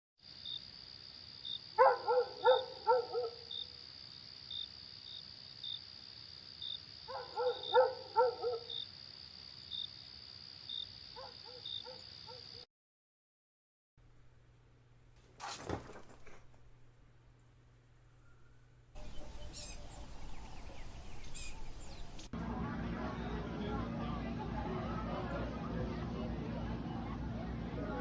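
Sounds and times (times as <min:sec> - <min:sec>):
crickets chirping: 0:00.2 - 0:12.6
dog barking: 0:01.8 - 0:03.6, 0:07.1 - 0:08.8, 0:11.1 - 0:12.6.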